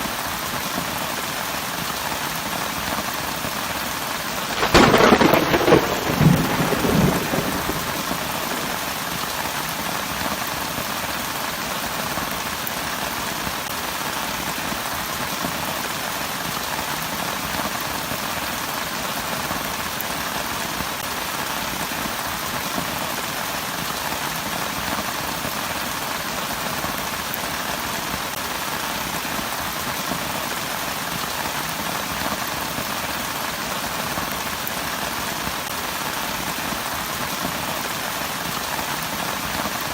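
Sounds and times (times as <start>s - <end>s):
heavy rain falling: 0.0s - 39.9s
thunder rumbling: 4.5s - 9.3s.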